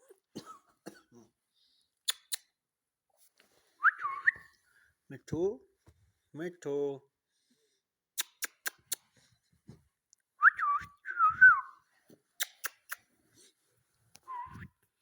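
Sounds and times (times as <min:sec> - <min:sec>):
sharp clicks: 0:12.4 - 0:13.0.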